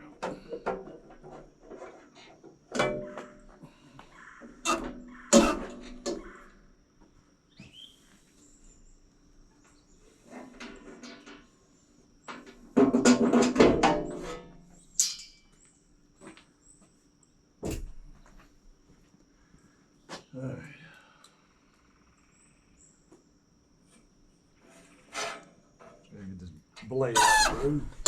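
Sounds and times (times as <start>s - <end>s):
metal covers clanking and rattling: 0.0s - 3.6s, 4.4s - 6.5s, 10.3s - 11.5s, 12.2s - 15.4s
sharp metal knocks: 4.7s - 6.4s.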